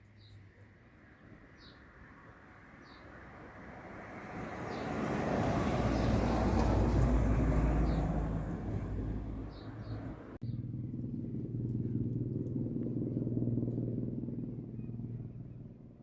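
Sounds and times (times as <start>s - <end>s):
helicopter flying past: 2.5s - 16.0s
steady engine drone: 6.9s - 16.0s.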